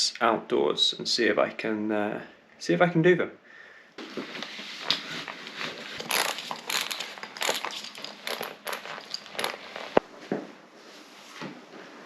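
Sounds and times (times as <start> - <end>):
rustling and crinkling handling noise: 4.0 - 10.4.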